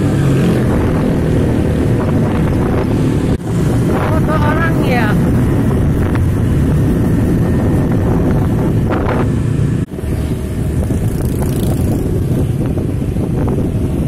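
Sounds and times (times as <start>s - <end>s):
road noise: 0.0s - 14.0s
vehicle engine: 0.0s - 14.0s
wind buffeting microphone: 0.0s - 14.0s.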